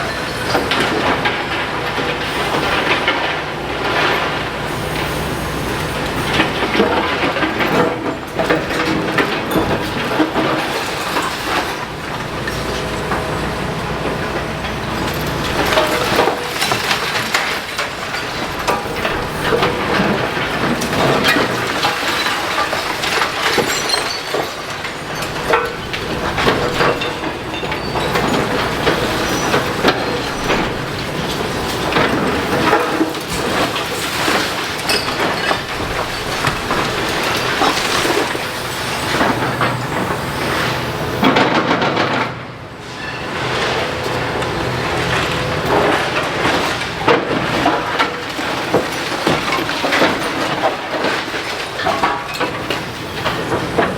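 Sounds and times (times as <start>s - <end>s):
excavator engine running: 0.0s - 23.4s
masonry and timber breaking: 6.1s - 40.3s, 44.9s - 53.9s.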